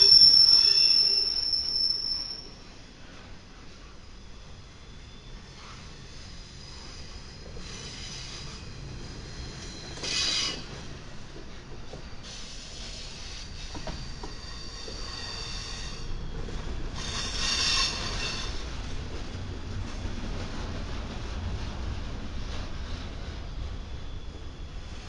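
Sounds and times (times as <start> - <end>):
wheel squeal: 0.0 - 2.7, 4.9 - 10.9, 12.3 - 18.6
train wheels rumbling on rail: 0.0 - 25.0.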